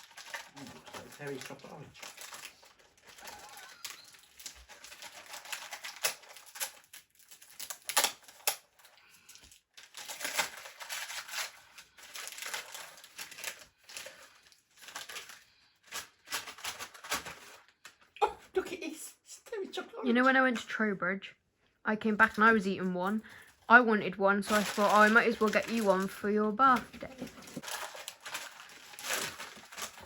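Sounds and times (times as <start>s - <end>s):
wrapping paper tearing and crumpling: 0.0s - 18.2s, 24.5s - 30.0s.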